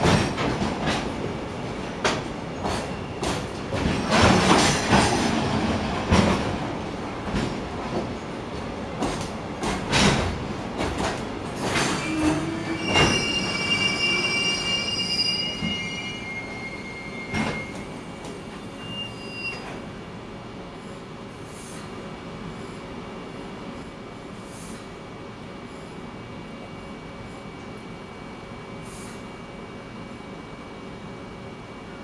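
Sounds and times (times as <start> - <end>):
high wheel squeal: 11.9 - 18.0, 18.6 - 19.8.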